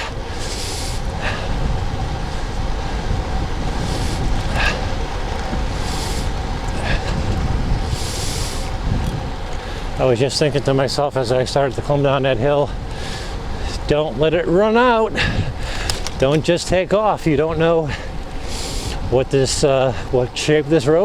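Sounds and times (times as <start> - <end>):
bike tyres rumbling on pavement: 0.0 - 21.0
wind rushing over microphone: 0.0 - 21.0.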